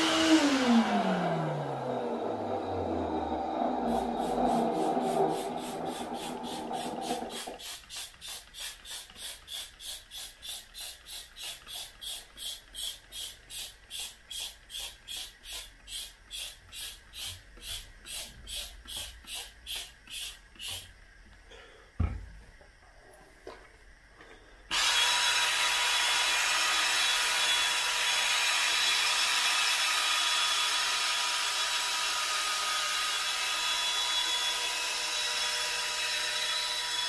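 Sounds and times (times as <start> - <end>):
vacuum cleaner motor winding down: 0.0 - 7.6, 24.7 - 37.0.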